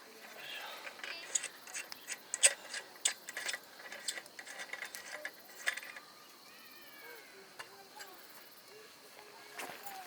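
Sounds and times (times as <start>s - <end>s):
small mechanism clicking and ratcheting: 0.8s - 6.1s.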